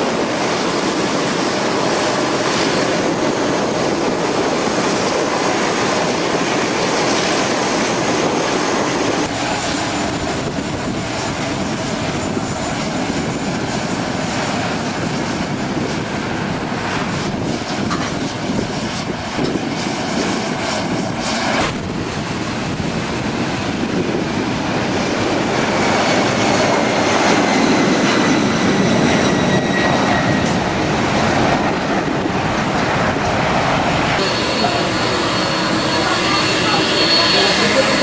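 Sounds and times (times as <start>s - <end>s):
airliner engine rush: 0.0s - 38.0s
high falling whine: 27.4s - 38.0s.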